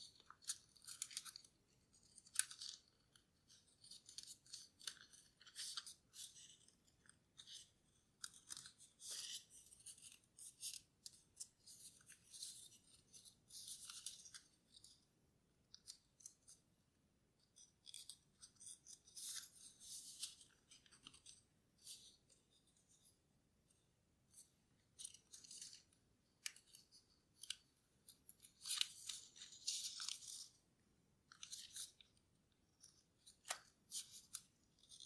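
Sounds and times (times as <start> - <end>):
paper being folded and creased: 0.1 - 15.0, 17.5 - 23.1, 24.3 - 30.6, 31.3 - 32.2, 32.8 - 35.0.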